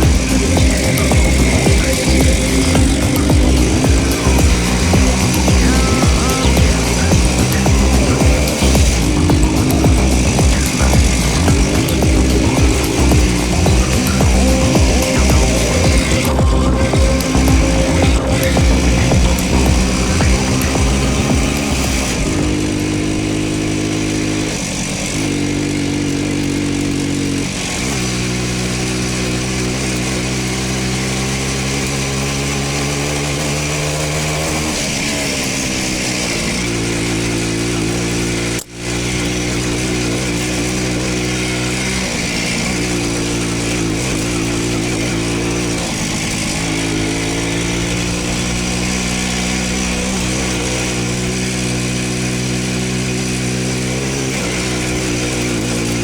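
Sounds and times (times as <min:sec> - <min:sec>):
two-stroke motorcycle engine running: 0:00.0 - 0:56.0.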